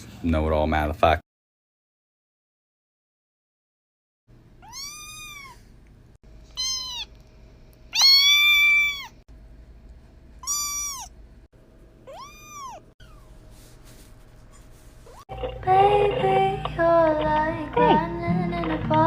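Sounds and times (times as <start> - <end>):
cat meowing: 4.6 - 5.6, 6.5 - 7.2, 7.9 - 9.2, 10.4 - 11.2, 12.1 - 13.3.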